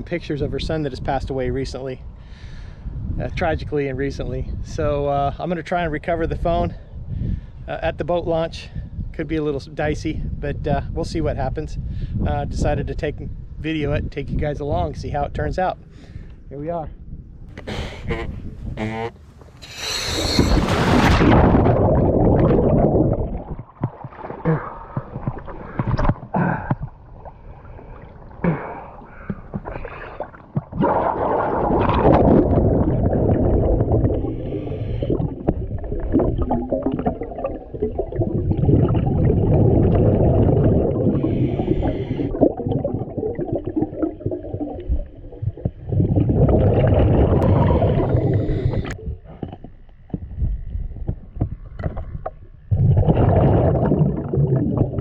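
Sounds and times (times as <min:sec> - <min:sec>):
diver breathing through regulator: 0:17.6 - 0:20.7, 0:27.6 - 0:30.4, 0:33.9 - 0:35.8, 0:40.5 - 0:42.5, 0:47.3 - 0:49.5
gurgling exhaled bubbles: 0:19.6 - 0:55.0.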